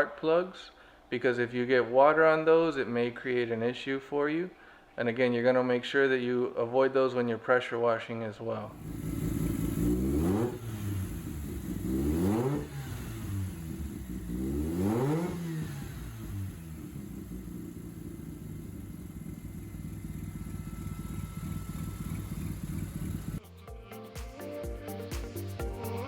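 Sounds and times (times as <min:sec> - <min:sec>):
rotary engine revving and idling: 0:08.8 - 0:23.4.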